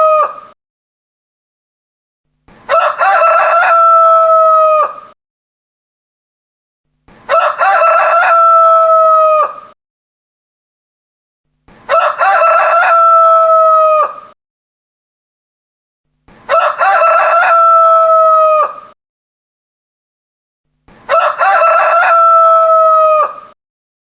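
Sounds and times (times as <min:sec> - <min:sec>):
rooster crowing: 0:00.0 - 0:00.5, 0:02.7 - 0:05.2, 0:07.3 - 0:09.8, 0:11.9 - 0:14.4, 0:16.5 - 0:19.0, 0:21.1 - 0:23.6.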